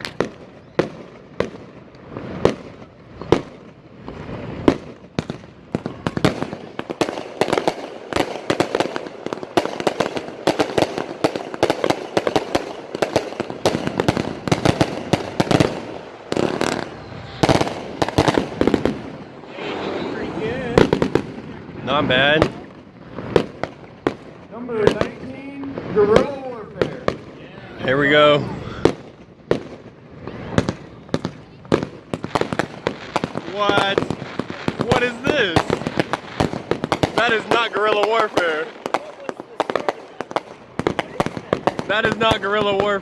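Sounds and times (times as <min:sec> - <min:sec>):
fireworks shots and bursts: 0:00.0 - 0:43.0.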